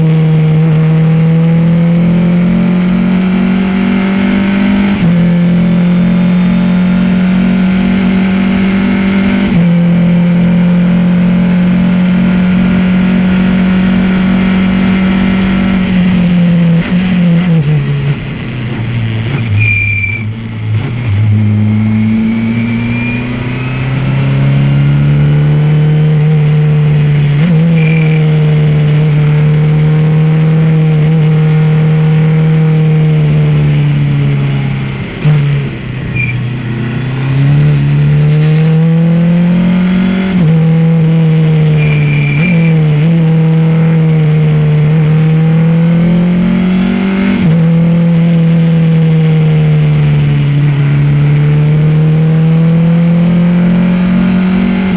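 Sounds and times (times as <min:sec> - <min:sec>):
race car engine revving: 0:00.0 - 0:54.9
brief high squeal: 0:19.5 - 0:20.4, 0:22.3 - 0:23.7, 0:36.2 - 0:36.4, 0:41.8 - 0:42.8.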